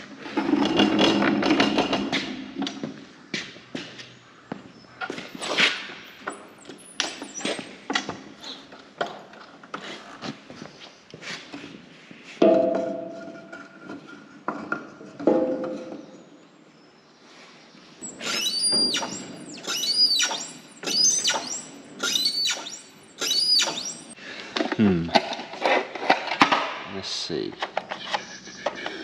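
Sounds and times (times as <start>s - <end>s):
metal knocks and clatter: 12.4s - 16.1s.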